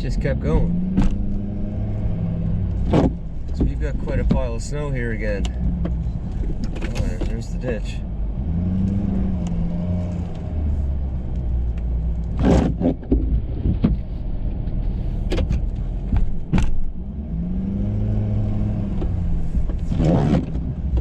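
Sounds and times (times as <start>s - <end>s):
sharp clunks: 15.3s - 16.9s.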